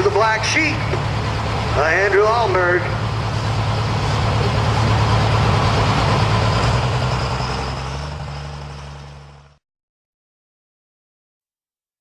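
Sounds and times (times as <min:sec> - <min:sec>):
diesel truck engine at low revs: 0:00.0 - 0:09.6.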